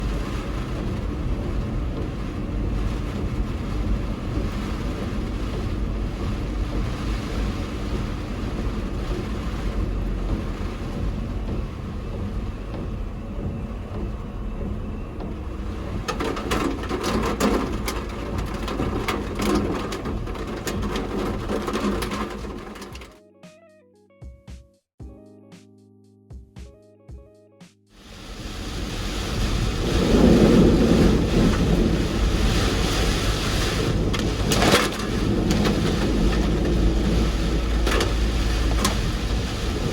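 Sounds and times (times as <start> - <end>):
vehicle engine low rumble: 0.0 - 23.1, 28.0 - 39.9
clicks and knocks: 10.3 - 23.2, 33.8 - 39.9.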